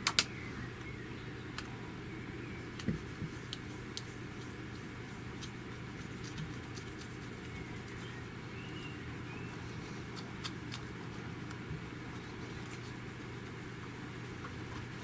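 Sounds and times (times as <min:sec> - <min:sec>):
steady low hum: 0:00.0 - 0:15.0
fingers clicking and scratching plastic: 0:02.8 - 0:08.2, 0:09.9 - 0:13.6.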